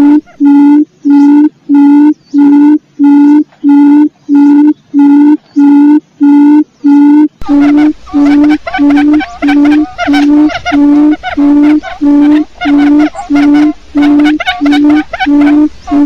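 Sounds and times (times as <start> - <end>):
quail call: 0.0 - 6.0, 7.0 - 16.0
low background rumble: 7.2 - 16.0.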